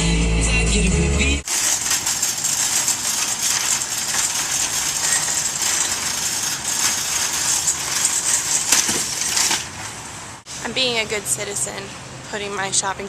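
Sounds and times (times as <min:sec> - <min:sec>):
shopping cart rattling on pavement: 0:01.4 - 0:10.4.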